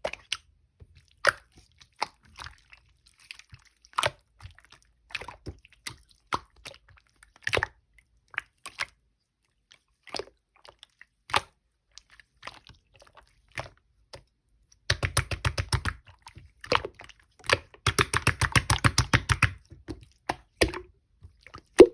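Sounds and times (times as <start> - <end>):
sticky slime pops: 17.5 - 19.6.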